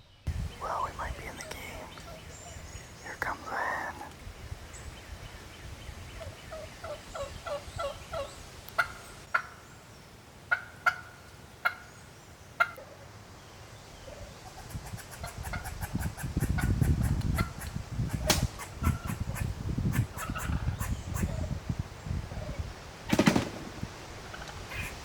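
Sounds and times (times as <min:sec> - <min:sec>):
turkey clucks: 0:06.2 - 0:09.6, 0:10.5 - 0:11.9, 0:12.6 - 0:13.0, 0:14.4 - 0:21.4, 0:24.2 - 0:25.0
turkey hen yelping: 0:06.5 - 0:09.6, 0:10.5 - 0:11.9, 0:12.6 - 0:12.8, 0:18.6 - 0:21.3, 0:24.3 - 0:25.0.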